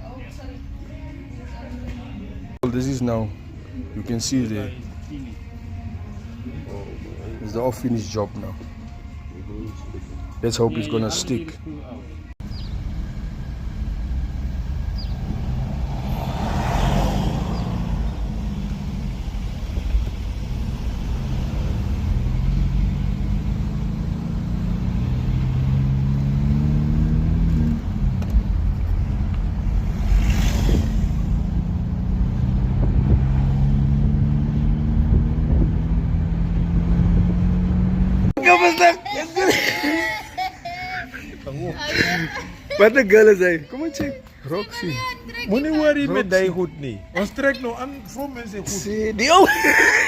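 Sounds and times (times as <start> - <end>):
low road rumble: 12.0 - 38.4
car engine running: 12.4 - 38.3.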